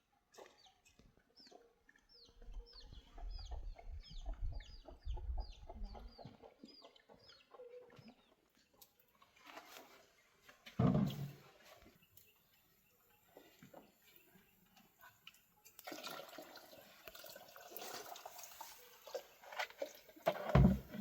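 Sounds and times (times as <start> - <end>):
chicks peeping: 1.4 - 8.4.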